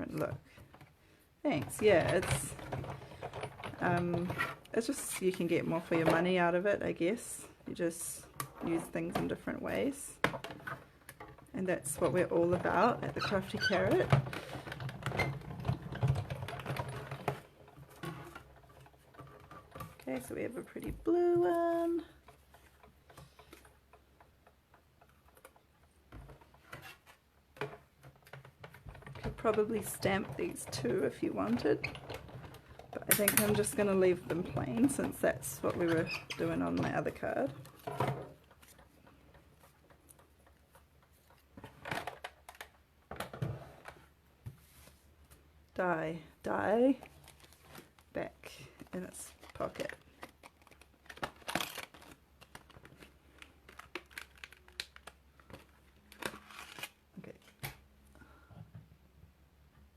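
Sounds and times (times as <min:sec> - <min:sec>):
card stock handling: 0:49.2 - 0:57.8.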